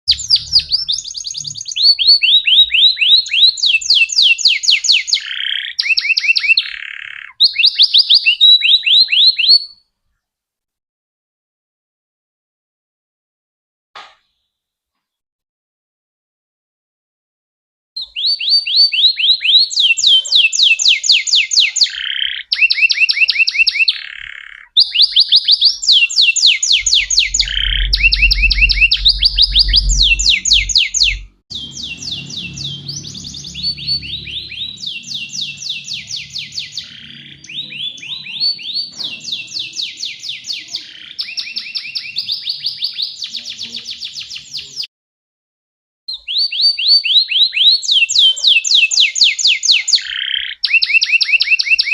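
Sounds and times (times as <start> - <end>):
low hum: 0.1 - 1.6, 26.7 - 36.8
canary trilling song: 0.1 - 9.8, 18.0 - 44.6, 46.1 - 51.9.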